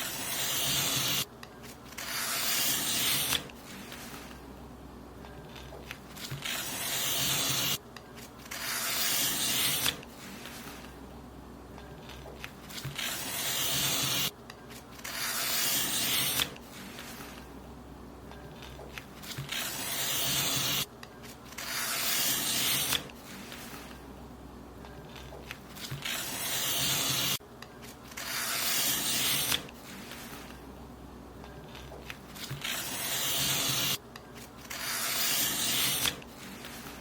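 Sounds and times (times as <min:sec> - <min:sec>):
paper being cut: 0:00.0 - 0:04.4, 0:05.5 - 0:07.8, 0:08.4 - 0:10.9, 0:12.0 - 0:14.3, 0:15.0 - 0:17.4, 0:18.6 - 0:20.9, 0:21.5 - 0:24.0, 0:25.1 - 0:27.4, 0:28.1 - 0:30.6, 0:31.7 - 0:34.0, 0:34.6 - 0:37.0.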